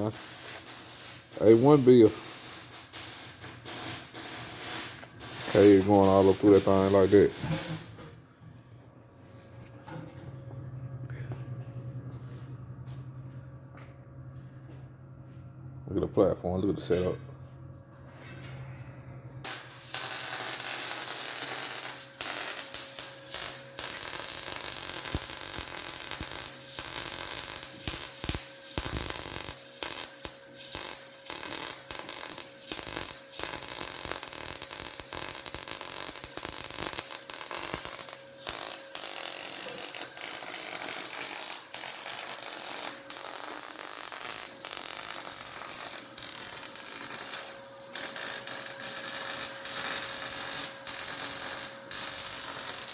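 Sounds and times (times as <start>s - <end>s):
welding arc crackling: 0.0s - 7.9s, 19.4s - 52.9s.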